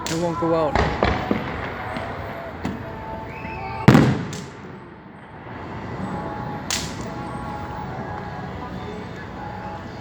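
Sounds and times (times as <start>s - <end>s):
fireworks bursting: 0.0s - 7.5s
faint music: 0.0s - 10.0s.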